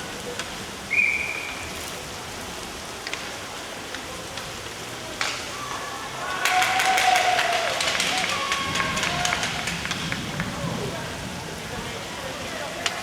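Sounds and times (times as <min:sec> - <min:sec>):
arena background hiss: 0:00.8 - 0:02.8.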